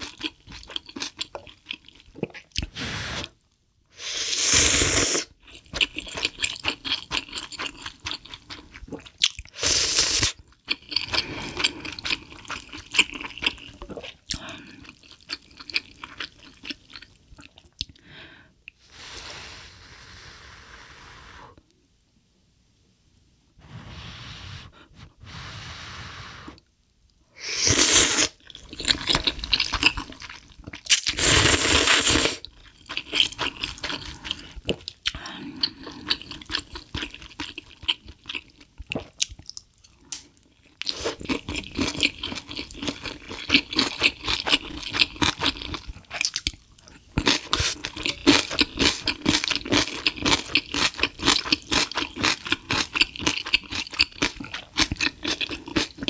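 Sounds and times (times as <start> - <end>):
chewing and crunching food: 0.0 - 2.7, 5.3 - 18.0, 28.3 - 56.0.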